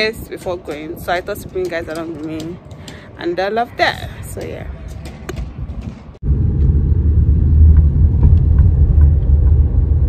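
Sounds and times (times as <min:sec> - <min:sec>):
car rumbling on the move: 0:06.2 - 0:10.0.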